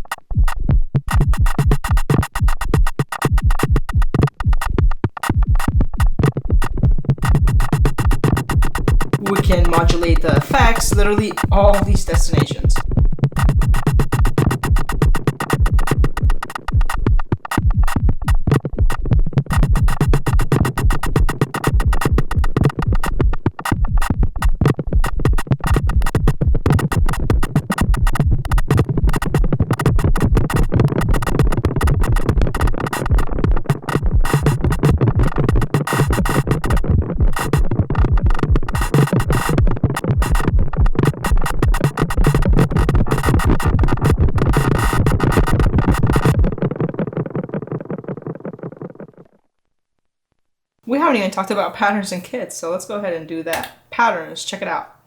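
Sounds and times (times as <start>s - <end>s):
fast electronic drum pattern: 0.0s - 49.2s.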